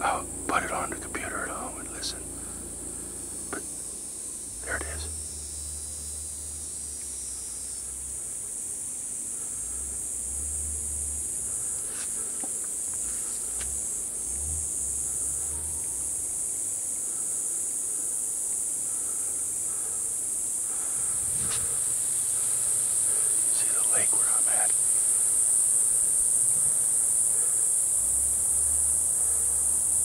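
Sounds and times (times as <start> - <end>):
night insects chorus: 0.0 - 30.0
faint ticks: 11.5 - 16.0, 21.3 - 27.0
low rumble: 20.7 - 23.3.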